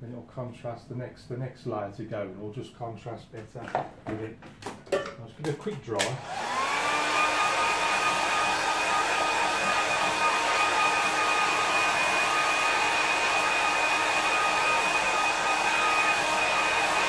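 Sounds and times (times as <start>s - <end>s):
hair dryer blowing: 6.0s - 17.0s.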